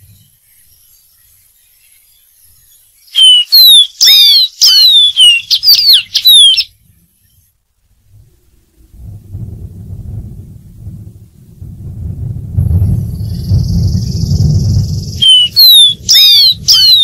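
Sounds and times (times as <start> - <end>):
bird whistling downslurred notes: 3.1 - 6.7, 15.1 - 17.0.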